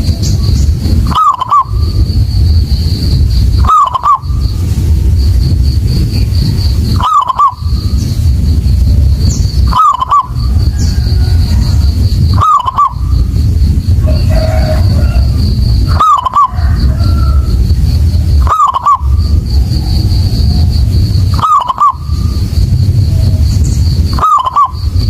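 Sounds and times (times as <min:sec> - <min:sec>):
dove cooing: 0:00.0 - 0:02.0, 0:03.5 - 0:04.6, 0:06.8 - 0:08.2, 0:09.2 - 0:22.5, 0:23.1 - 0:25.0
steady low rumble: 0:00.0 - 0:25.0.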